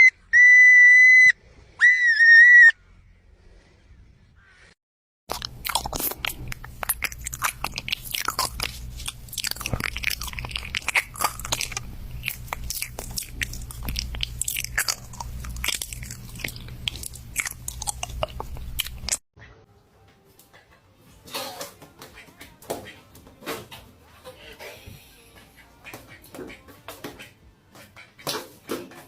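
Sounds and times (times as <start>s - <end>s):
crunchy food being chewed: 5.3s - 19.2s
low steady hum: 5.3s - 20.0s.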